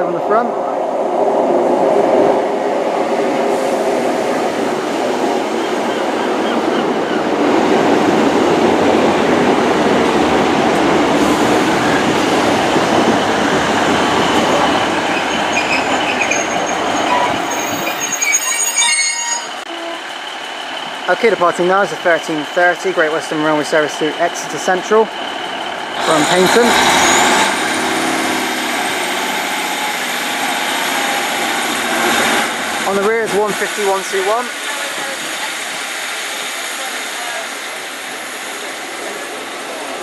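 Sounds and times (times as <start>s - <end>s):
train wheels rumbling on rails: 0.0s - 18.7s, 19.6s - 40.0s
train brakes squealing: 14.0s - 22.5s, 23.4s - 27.6s.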